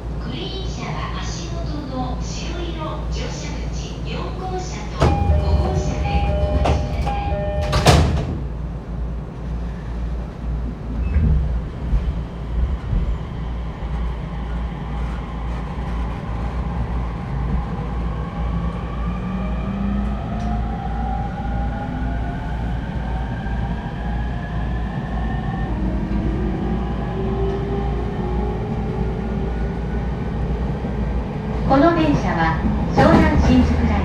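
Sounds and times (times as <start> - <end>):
train traction motor whine: 4.1 - 9.3
door chime: 5.0 - 8.1
sliding doors shutting with thud: 5.0 - 8.6.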